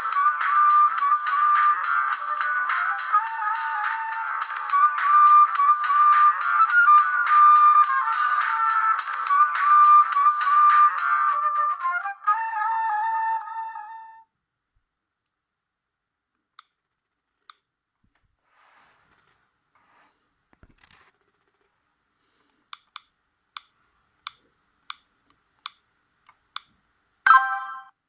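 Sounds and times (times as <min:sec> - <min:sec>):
brief loud phone tone: 0:27.3 - 0:27.9.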